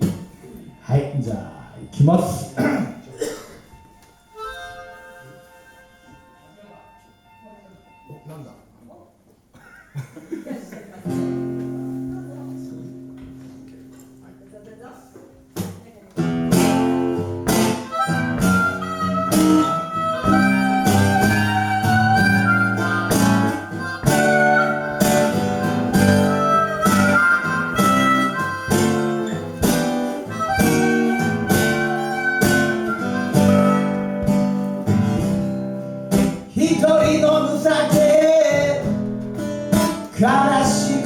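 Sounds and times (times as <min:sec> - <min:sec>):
harmonica playing blues: 0:03.6 - 0:08.1, 0:16.2 - 0:41.0
acoustic guitar strumming: 0:11.1 - 0:14.2, 0:16.2 - 0:41.0.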